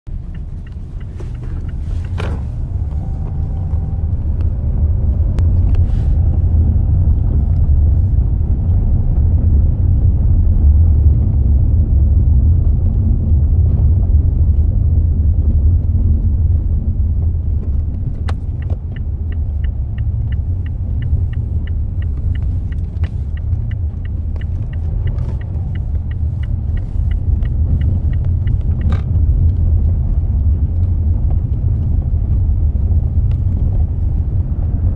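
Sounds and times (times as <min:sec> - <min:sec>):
regular ticking: 0:00.1 - 0:05.5, 0:17.9 - 0:32.0
low rumble: 0:00.1 - 0:34.9
suspension knocking: 0:17.5 - 0:32.4.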